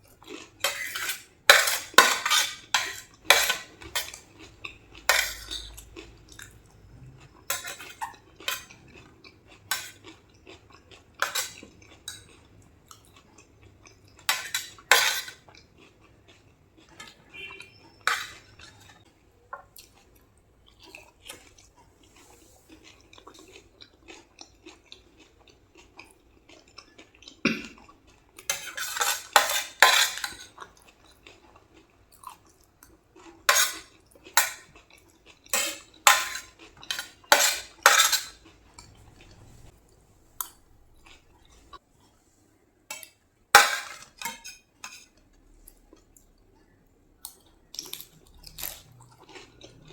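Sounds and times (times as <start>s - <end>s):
crunching and chewing: 0.0s - 42.2s, 45.2s - 49.9s
spoon clinking on plate: 5.1s - 5.8s, 7.5s - 8.7s, 17.0s - 18.9s.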